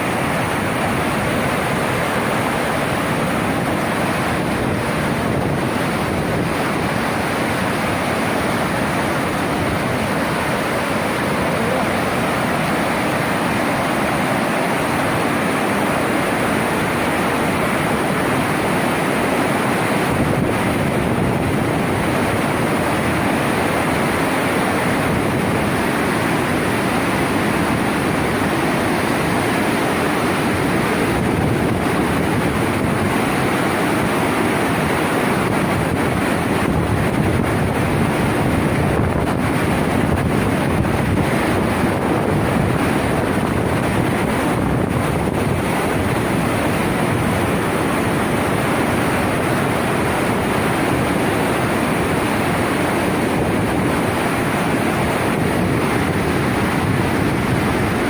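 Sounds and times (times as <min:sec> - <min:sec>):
floodwater rushing: 0:00.0 - 0:58.0.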